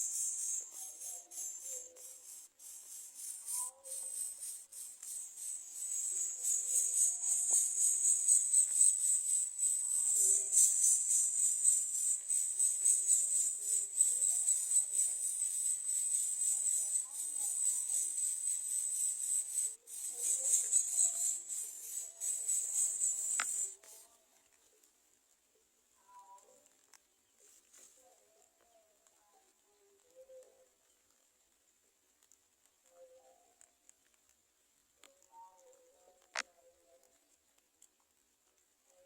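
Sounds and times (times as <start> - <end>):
faint bird calls: 0.0 - 23.8
high-pitched insect chorus: 0.0 - 24.0.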